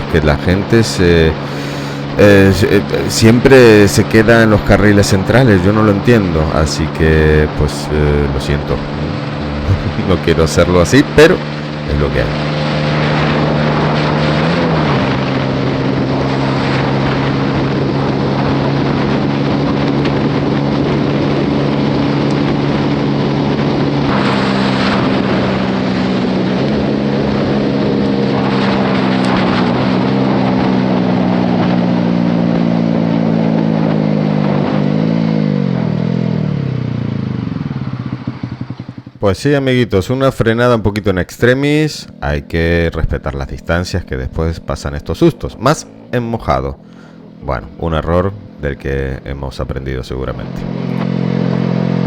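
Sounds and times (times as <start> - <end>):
motorcycle engine running: 0.0 - 39.4, 42.0 - 52.0
rushing wind noise: 1.1 - 35.7.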